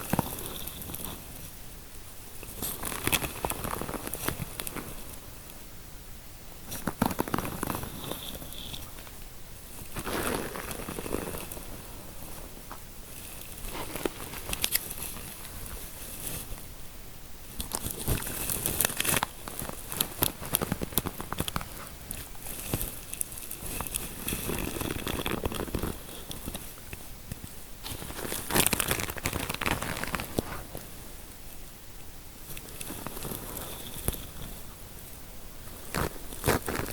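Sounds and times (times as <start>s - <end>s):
fingers scratching through hair: 0.0s - 1.5s, 2.4s - 5.2s, 6.7s - 9.2s, 9.8s - 12.5s, 13.1s - 16.6s, 17.6s - 30.9s, 35.6s - 36.9s.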